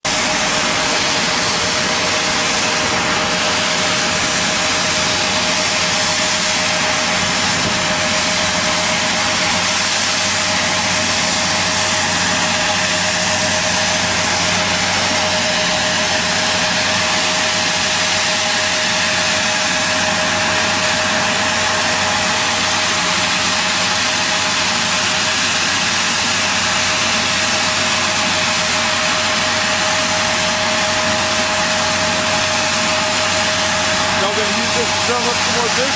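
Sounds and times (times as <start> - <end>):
high whine: 0.0 - 35.9
loud engine noise: 0.0 - 35.9.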